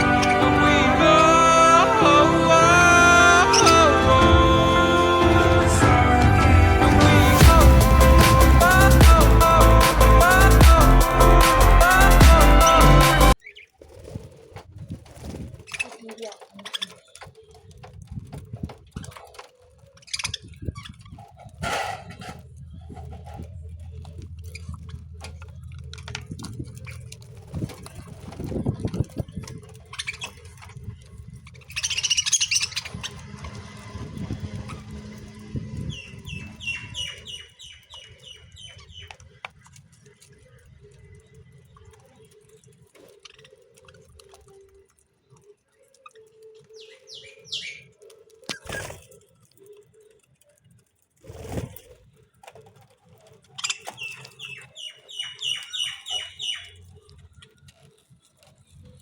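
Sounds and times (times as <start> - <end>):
lovebird chirping: 0.0 - 4.4, 31.6 - 39.2, 46.0 - 49.1, 53.6 - 57.6
low rumble: 0.0 - 11.4
lovebirds chirping: 0.0 - 13.8, 22.5 - 50.2, 53.5 - 58.8.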